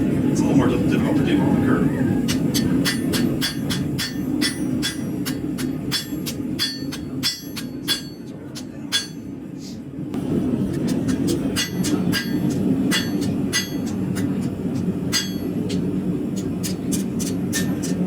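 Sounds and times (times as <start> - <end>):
hammer ringing on metal blade: 2.5 - 8.3, 8.9 - 9.3, 11.5 - 14.4, 15.1 - 15.7.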